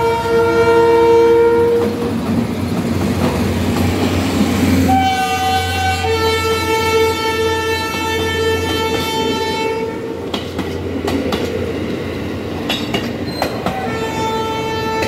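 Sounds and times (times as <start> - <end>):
train horn: 0.0 - 2.0, 4.8 - 10.3, 13.6 - 15.0
train wheels clattering over rails: 1.7 - 5.0, 10.2 - 14.2.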